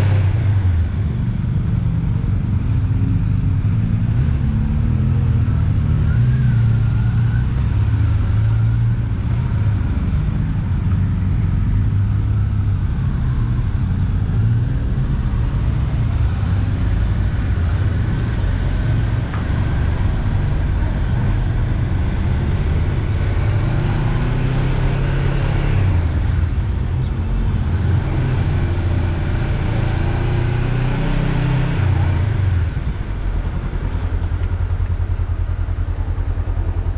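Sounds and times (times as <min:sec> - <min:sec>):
motorcycle engine running: 0:31.4 - 0:36.9.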